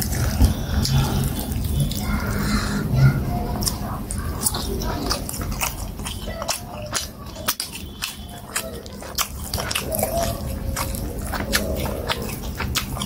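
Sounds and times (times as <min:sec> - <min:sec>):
mouth clicks and smacks: 0:00.0 - 0:13.0
person chewing wetly: 0:00.0 - 0:13.0.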